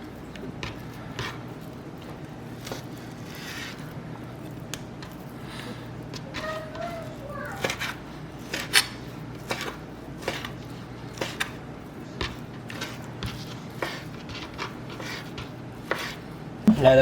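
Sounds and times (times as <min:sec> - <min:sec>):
steady low hum: 0:00.0 - 0:17.0
knife chopping on cutting board: 0:07.6 - 0:11.6, 0:12.2 - 0:16.2.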